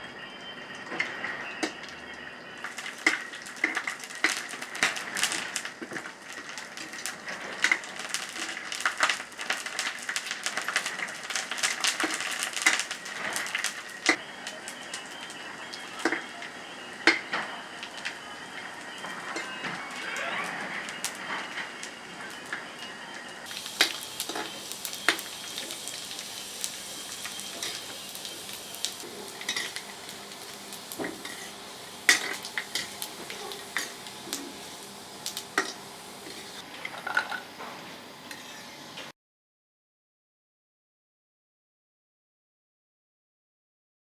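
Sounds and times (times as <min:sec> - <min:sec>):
cooking hiss: 0:01.0 - 0:39.1
utensils knocking against dishes: 0:29.1 - 0:29.9, 0:31.0 - 0:31.5, 0:32.1 - 0:34.5.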